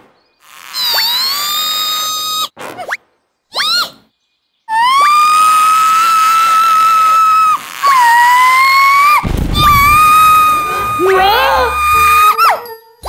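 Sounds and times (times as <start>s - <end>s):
high whistle-like tones: 9.6s - 13.0s.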